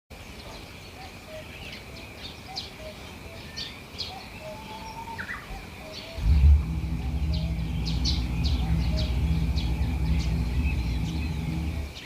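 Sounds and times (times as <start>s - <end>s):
small birds chirping: 0.2s - 12.0s
low steady hum: 6.2s - 12.0s.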